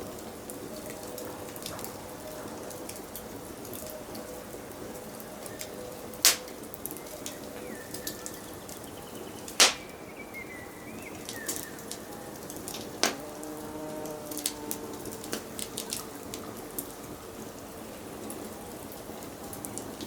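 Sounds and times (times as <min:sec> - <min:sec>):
wood fire crackling: 0:00.0 - 0:20.0
faint birdsong: 0:04.9 - 0:18.9
loud fire pops: 0:06.2 - 0:06.6, 0:09.6 - 0:10.0.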